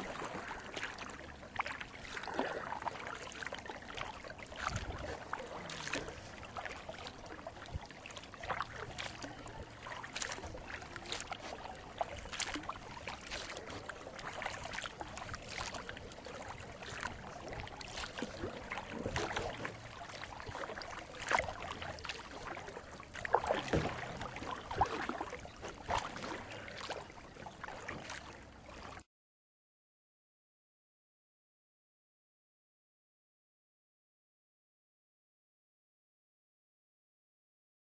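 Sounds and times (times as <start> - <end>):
paddle strokes splashing water: 0.0 - 29.1
water drips: 1.6 - 27.1.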